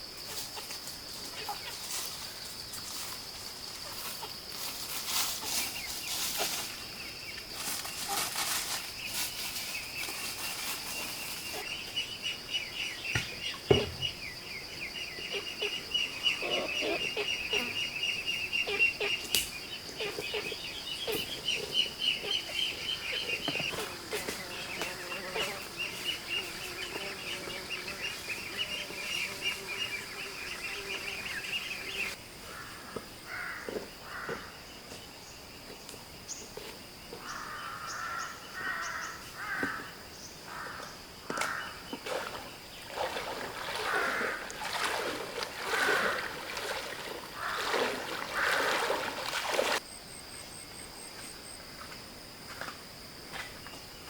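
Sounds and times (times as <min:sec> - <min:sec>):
birds chirping: 0:09.0 - 0:32.2, 0:37.2 - 0:49.7
knocks: 0:13.1 - 0:14.2.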